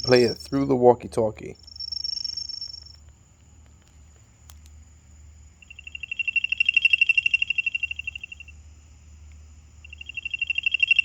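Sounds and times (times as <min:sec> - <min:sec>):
faint steady high whine: 0:00.0 - 0:11.0
click: 0:02.8 - 0:04.8
rapid pulsed high trill: 0:09.8 - 0:11.0.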